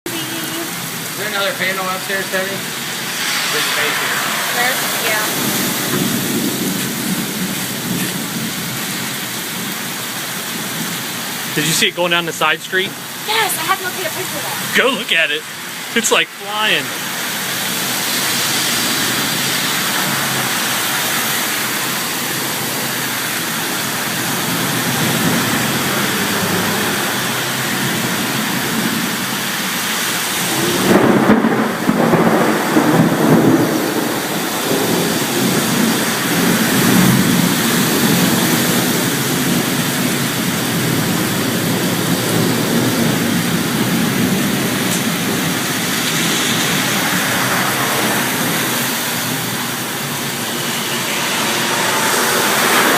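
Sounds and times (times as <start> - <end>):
fast-running floodwater: 0.0 - 52.9
heavy rain: 0.0 - 52.9
low rumbling: 0.2 - 8.0.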